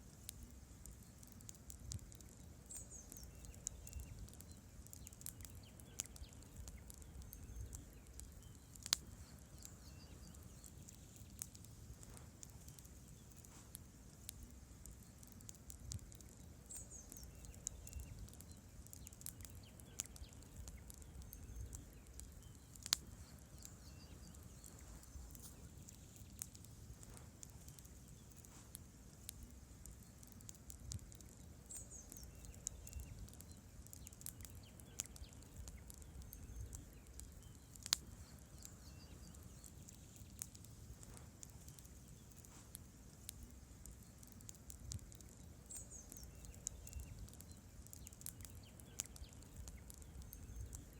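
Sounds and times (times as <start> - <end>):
logs crackling and popping: 0.0 - 50.9
low hum of flames: 0.0 - 50.9.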